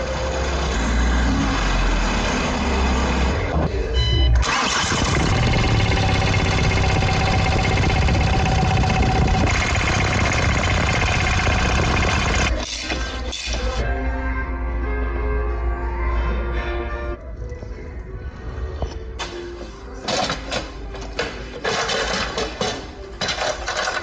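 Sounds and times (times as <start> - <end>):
car engine running: 4.4 - 12.5.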